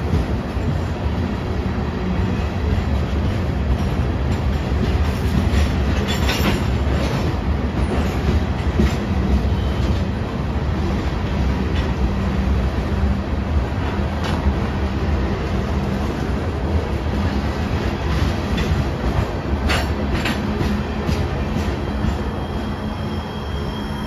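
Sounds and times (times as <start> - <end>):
train wheels rumbling on track: 0.0 - 24.0
high-pitched wheel squeals: 21.6 - 24.0.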